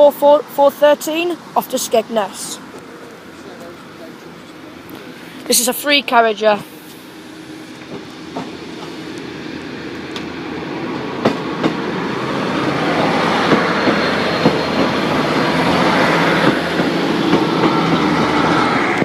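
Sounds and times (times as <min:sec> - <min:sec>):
diesel train engine rumble: 0:00.0 - 0:19.0
train wheel clatter: 0:07.7 - 0:19.0
wheels clicking over rail joints: 0:07.7 - 0:19.0.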